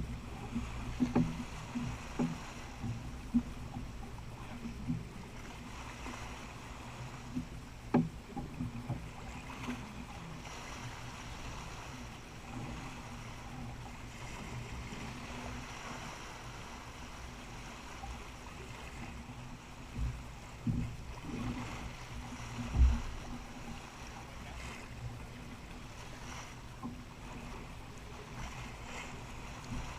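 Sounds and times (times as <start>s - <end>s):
low wind rumble: 0.0s - 9.4s, 19.2s - 29.9s
water rushing along a hull: 0.0s - 29.9s.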